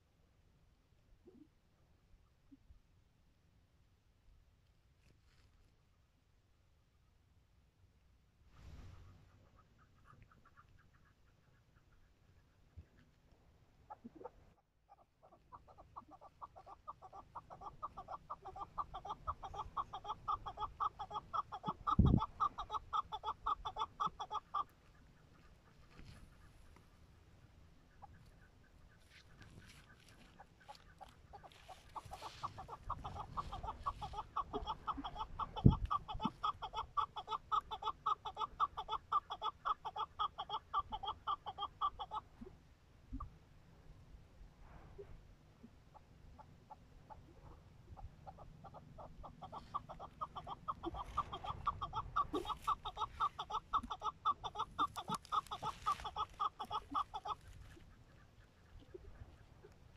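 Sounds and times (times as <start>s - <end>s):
partridge clucking call: 13.9s - 27.1s, 27.8s - 42.5s, 45.9s - 59.8s.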